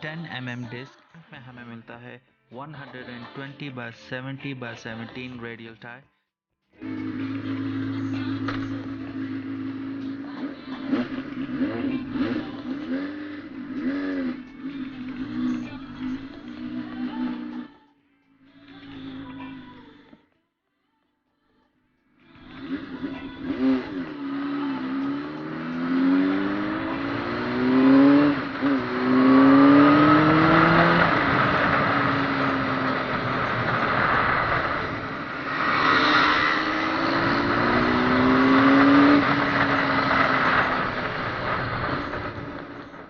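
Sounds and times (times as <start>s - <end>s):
motorcycle engine accelerating: 6.8s - 17.7s, 22.3s - 43.0s.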